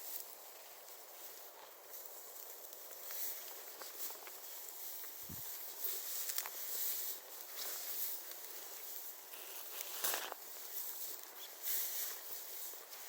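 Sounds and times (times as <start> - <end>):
footsteps crunching on a trail: 0.0 - 13.0
outdoor background hiss: 0.0 - 13.0.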